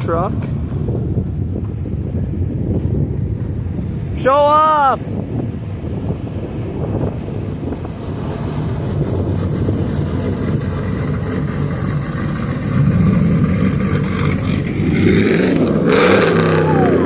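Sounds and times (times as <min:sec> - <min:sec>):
pickup truck driving past: 0:05.5 - 0:17.0.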